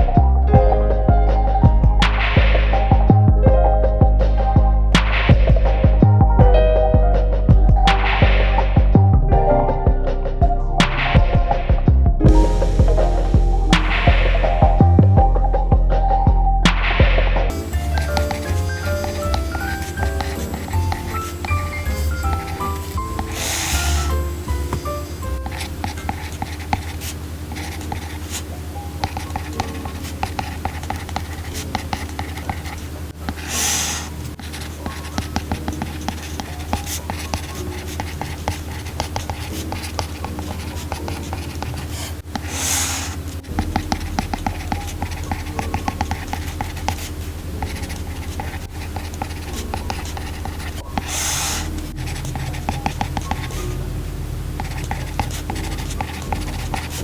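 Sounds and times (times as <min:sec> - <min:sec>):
soft background music: 0:00.0 - 0:57.0
stylus tapping and scratching screen: 0:12.3 - 0:15.8, 0:16.7 - 0:57.0.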